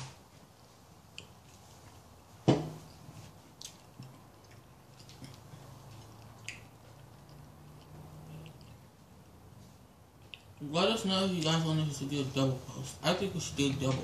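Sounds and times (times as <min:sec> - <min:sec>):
soft chewing: 0:00.0 - 0:10.6.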